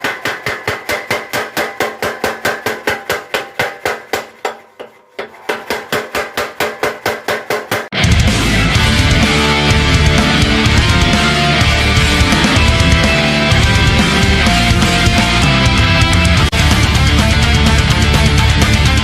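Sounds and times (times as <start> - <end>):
power hammer striking metal: 0.0 - 15.4
loud rock music: 7.9 - 19.0.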